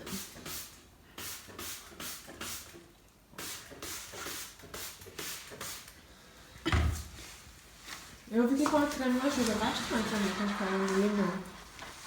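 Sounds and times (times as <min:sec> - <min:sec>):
sponge scrubbing glass: 0:08.8 - 0:12.0.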